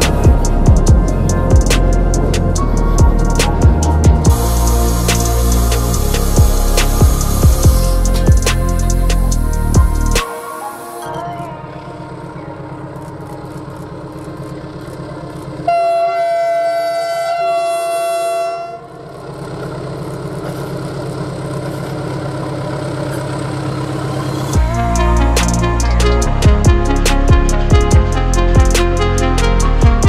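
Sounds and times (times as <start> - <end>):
locomotive running: 0.0 - 30.0
locomotive horn blast: 15.7 - 19.1, 24.1 - 30.0.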